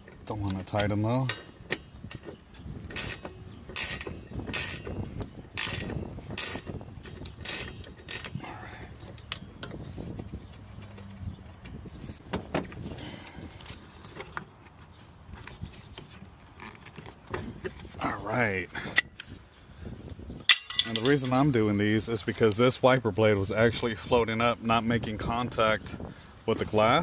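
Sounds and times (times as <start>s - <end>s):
metal parts clacking: 0.5s - 5.0s, 5.6s - 9.8s, 20.4s - 21.5s
ratchet wrench clicking: 2.9s - 5.0s, 5.6s - 8.4s.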